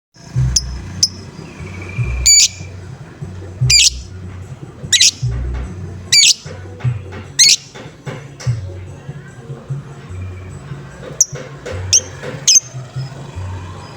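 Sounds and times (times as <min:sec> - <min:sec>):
low pulsing beat: 0:00.3 - 0:09.0
lovebird squawking: 0:00.6 - 0:02.8, 0:03.6 - 0:04.1, 0:04.9 - 0:05.4, 0:06.1 - 0:06.6, 0:07.3 - 0:07.8, 0:11.2 - 0:12.7.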